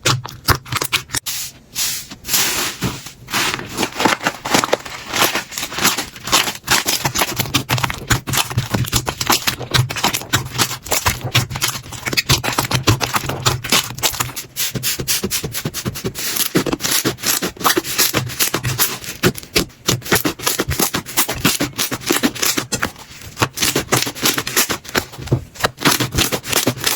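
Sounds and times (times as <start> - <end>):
slime crackling and popping: 3.7 - 14.3.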